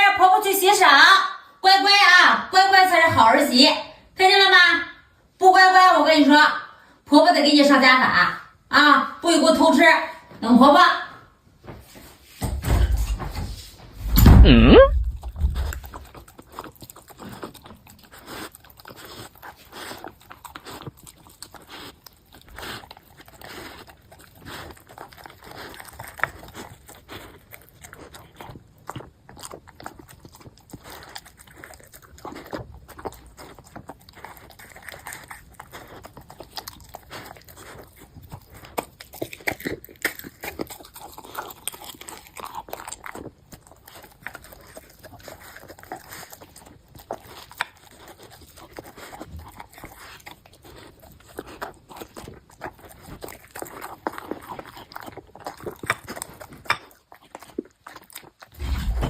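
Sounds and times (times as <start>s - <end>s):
dog crunching and chewing food: 14.0s - 59.0s.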